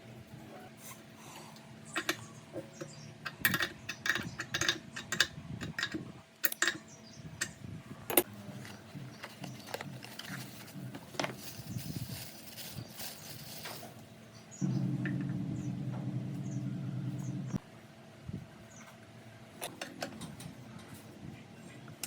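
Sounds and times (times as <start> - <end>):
faint steady hum: 0.0 - 22.0
metallic clicks and knocks: 2.8 - 8.3.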